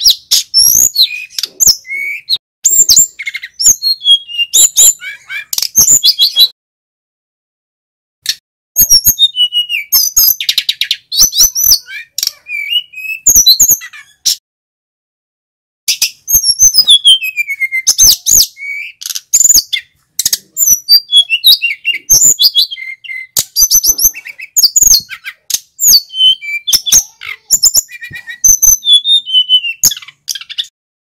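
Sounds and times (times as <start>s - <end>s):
flycatcher singing: 16.0s - 30.7s.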